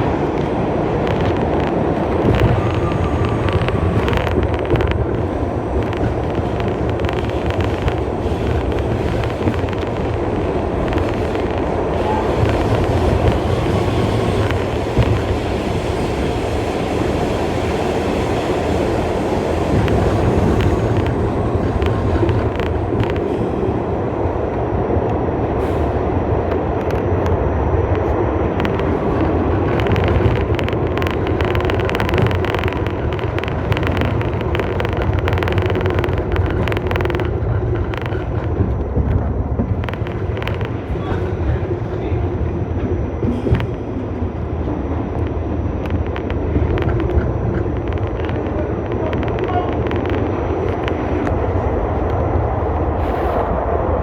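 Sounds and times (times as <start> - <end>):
clicks over rail joints: 0.0 - 15.7, 19.0 - 24.0, 26.5 - 42.2
faint train whine: 0.0 - 54.0
train wheels rumbling on rail: 0.0 - 54.0.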